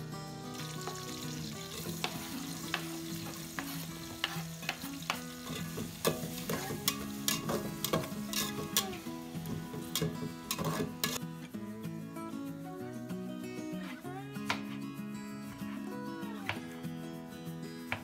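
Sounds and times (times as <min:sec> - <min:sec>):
onions frying in oil: 0:00.0 - 0:11.2
spatula scraping metal pot: 0:00.8 - 0:11.2.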